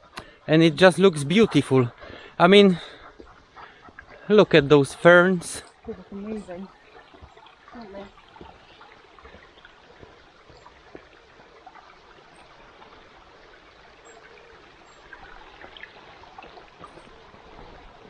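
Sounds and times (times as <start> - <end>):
faint clicks: 0.0 - 0.5
stream flowing: 0.0 - 18.0.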